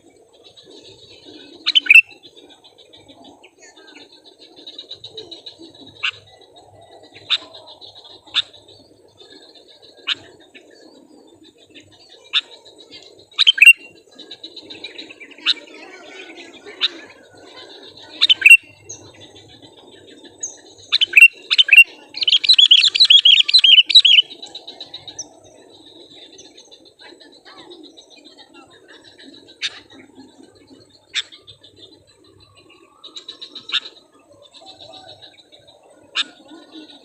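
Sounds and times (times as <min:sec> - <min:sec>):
bird rapid chattering: 0:00.4 - 0:06.4, 0:11.7 - 0:35.3
bird calling sharp notes: 0:01.7 - 0:02.1, 0:18.2 - 0:18.7, 0:20.9 - 0:24.3.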